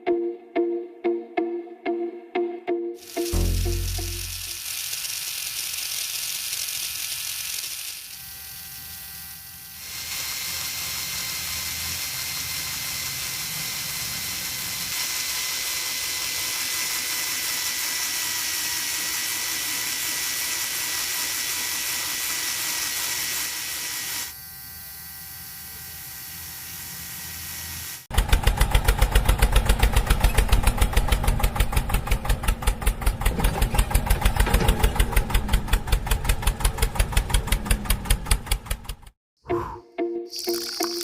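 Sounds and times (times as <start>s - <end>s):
small electric motor whining: 3.0s - 28.1s.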